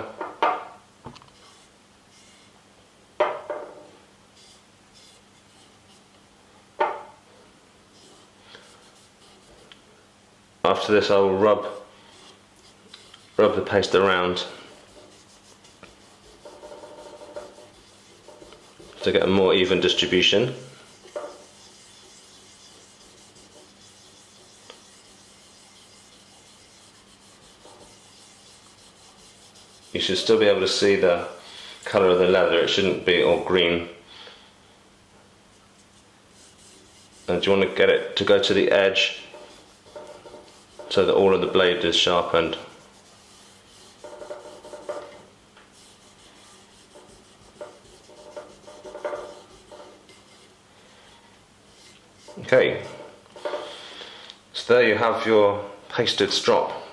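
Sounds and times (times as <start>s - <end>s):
finger rubbing paste on leather: 20.8s - 30.2s.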